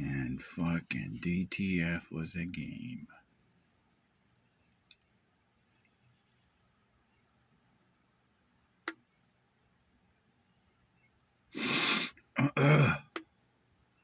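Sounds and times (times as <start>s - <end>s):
person clearing throat: 12.4s - 13.2s.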